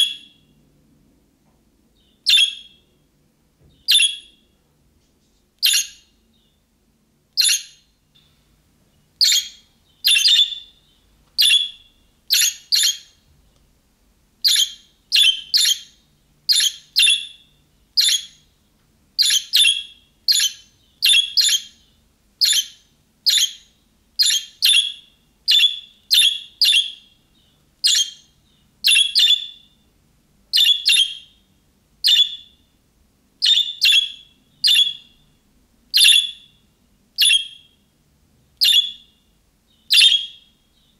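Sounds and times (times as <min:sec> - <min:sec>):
budgerigar chirping: 0:00.0 - 0:00.5, 0:02.2 - 0:02.8, 0:03.8 - 0:04.4, 0:05.6 - 0:06.1, 0:07.4 - 0:07.9, 0:09.2 - 0:13.2, 0:14.4 - 0:18.4, 0:19.2 - 0:27.2, 0:27.8 - 0:29.8, 0:30.5 - 0:31.4, 0:32.0 - 0:32.6, 0:33.4 - 0:35.2, 0:35.9 - 0:36.6, 0:37.2 - 0:37.8, 0:38.6 - 0:39.2, 0:39.9 - 0:40.9.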